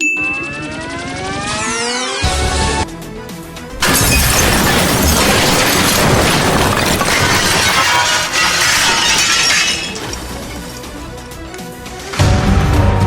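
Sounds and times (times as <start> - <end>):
music: 2.2 - 6.2, 8.2 - 13.0
smashing and breaking crash: 3.7 - 11.5.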